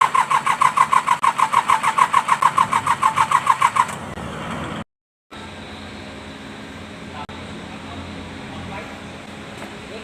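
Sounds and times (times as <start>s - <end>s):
starter motor cranking diesel engine: 0.0s - 4.8s.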